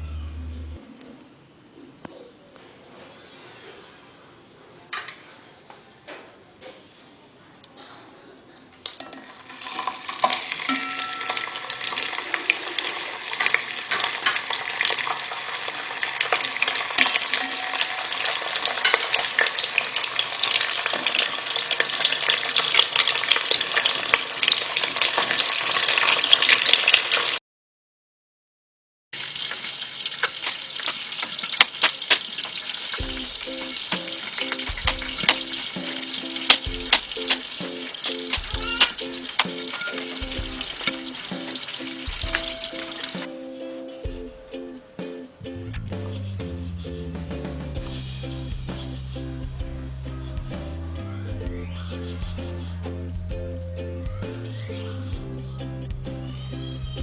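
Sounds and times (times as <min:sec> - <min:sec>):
food sizzling in hot oil: 0:08.8 - 0:27.4, 0:29.2 - 0:43.4, 0:46.0 - 0:51.0
soft music: 0:09.8 - 0:12.4, 0:33.0 - 0:57.0.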